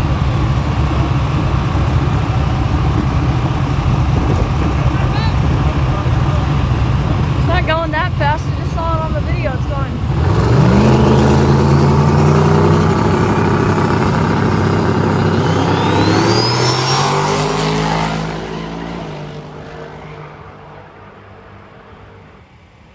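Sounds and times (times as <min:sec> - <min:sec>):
truck engine at high revs: 0:00.0 - 0:22.7
turbo whistle: 0:14.7 - 0:18.6.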